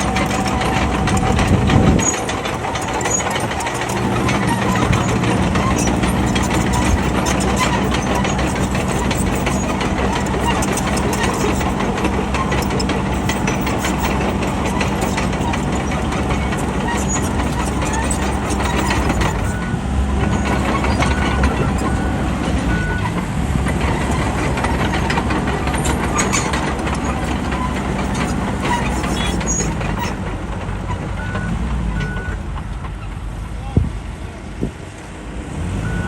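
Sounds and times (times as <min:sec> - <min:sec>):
clatter: 0:00.0 - 0:33.8
bulldozer diesel engine: 0:00.0 - 0:36.0
reversing alarm beeping: 0:18.8 - 0:23.2.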